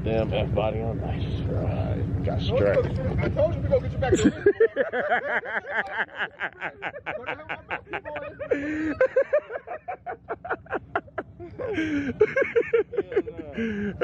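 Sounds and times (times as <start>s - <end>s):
person chuckling: 4.1s - 14.0s.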